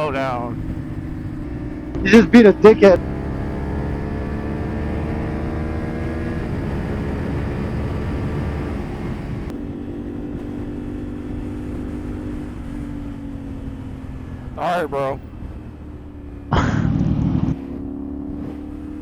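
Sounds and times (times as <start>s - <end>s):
motorcycle engine: 0.0s - 19.0s.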